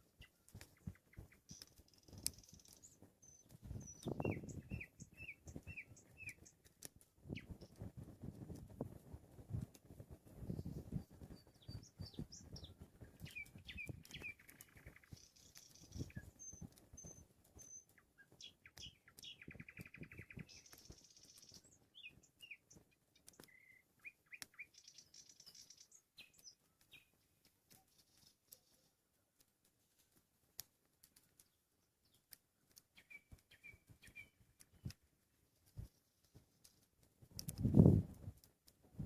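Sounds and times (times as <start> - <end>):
nightingale singing: 0.0 - 6.6, 11.0 - 28.9, 31.4 - 35.0.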